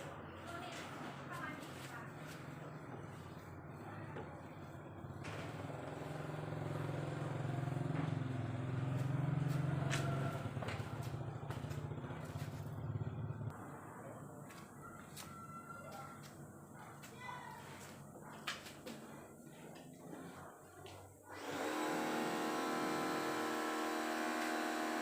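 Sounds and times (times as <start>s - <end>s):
engine running with low hum: 2.3s - 14.7s, 19.4s - 25.0s.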